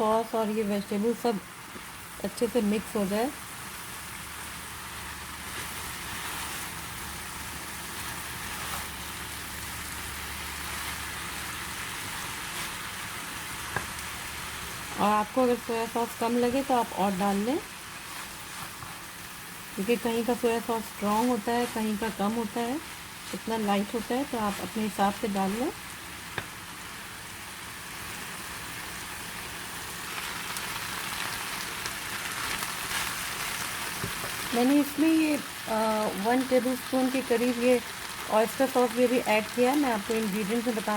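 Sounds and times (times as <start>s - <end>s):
food sizzling in a pan: 0.0s - 40.9s.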